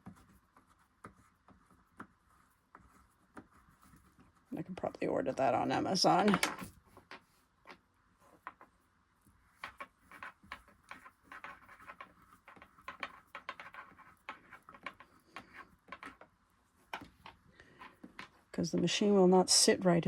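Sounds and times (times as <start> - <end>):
small parts clicking and tapping: 6.0 - 7.8, 9.6 - 18.4.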